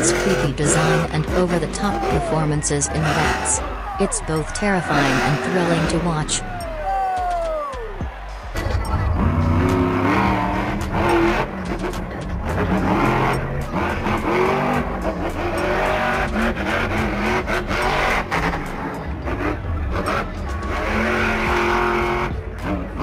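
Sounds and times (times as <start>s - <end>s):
truck engine revving: 0.0s - 23.0s.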